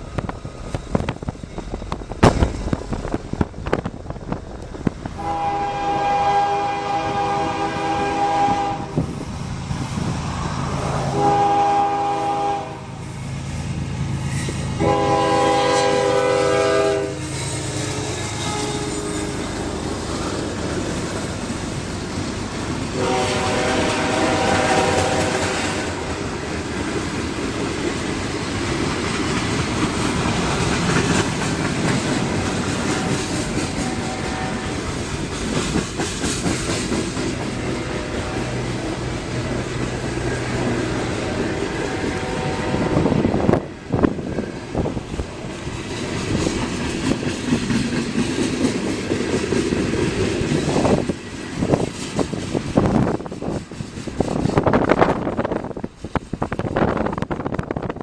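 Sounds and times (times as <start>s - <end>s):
freight train rumbling and clattering: 0.0s - 58.0s
locomotive horn blasts: 5.2s - 9.1s, 11.0s - 12.9s, 14.8s - 19.4s, 22.9s - 26.1s, 32.9s - 34.8s, 37.9s - 39.0s, 41.3s - 43.6s.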